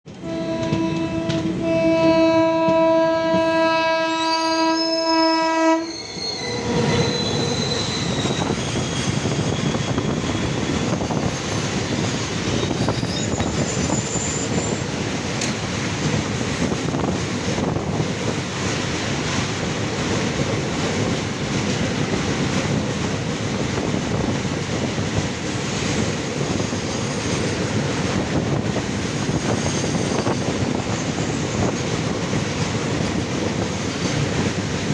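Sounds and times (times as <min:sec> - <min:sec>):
train wheels rumbling and clattering: 0:00.0 - 0:04.5, 0:06.0 - 0:34.9
locomotive horn blast: 0:00.1 - 0:06.0
high wheel squeals: 0:04.2 - 0:14.9, 0:29.1 - 0:31.8.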